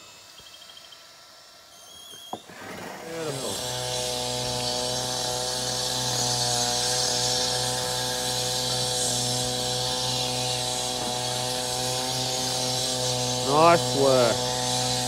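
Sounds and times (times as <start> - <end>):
small engine running: 0.0 - 15.0
steady high hiss: 0.0 - 15.0.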